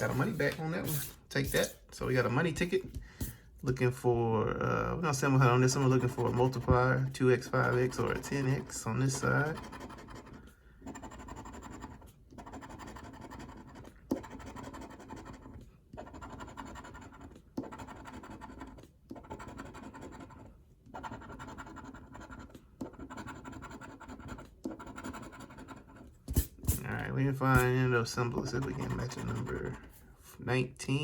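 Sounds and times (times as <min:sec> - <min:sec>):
lottery ticket being scratched: 0:05.3 - 0:10.4, 0:21.0 - 0:29.8.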